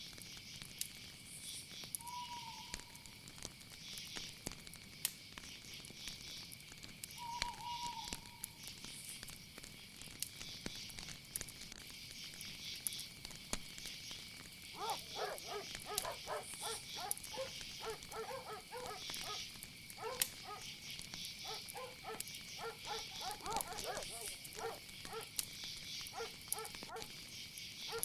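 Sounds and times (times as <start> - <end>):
high insect trill: 5.2 - 28.0
short repeated animal calls: 14.8 - 20.7, 21.4 - 25.3.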